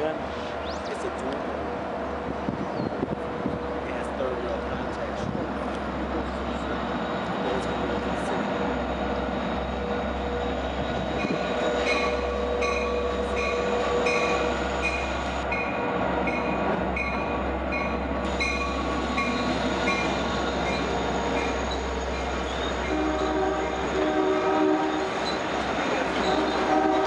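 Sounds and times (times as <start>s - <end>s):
locomotive rumbling past: 0.0s - 27.0s
locomotive bell ringing: 6.2s - 24.2s.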